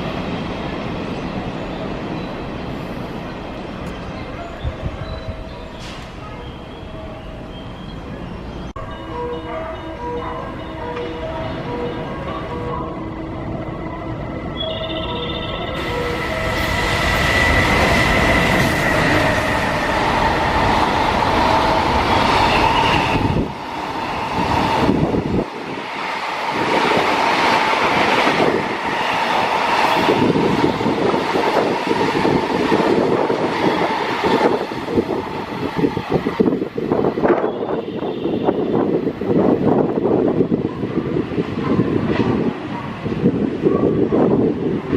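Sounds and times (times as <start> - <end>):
train whine: 0.0 - 44.9
freight train wheels rushing: 10.9 - 44.9.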